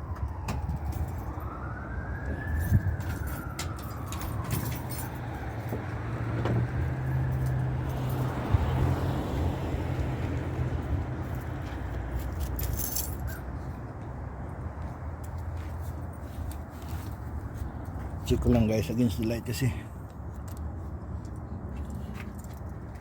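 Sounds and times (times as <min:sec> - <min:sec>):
siren wailing: 0:00.0 - 0:08.7.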